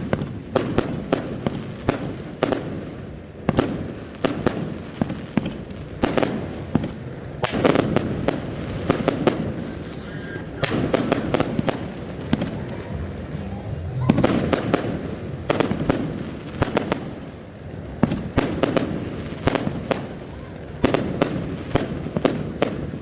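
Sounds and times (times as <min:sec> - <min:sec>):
fireworks bangs and crackles: 0:00.0 - 0:23.0
low rumbling echo: 0:09.2 - 0:19.2.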